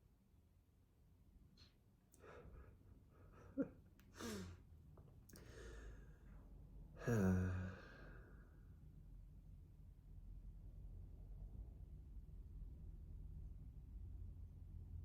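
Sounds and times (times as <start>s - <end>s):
man sighing: 4.1s - 4.6s, 7.0s - 8.4s.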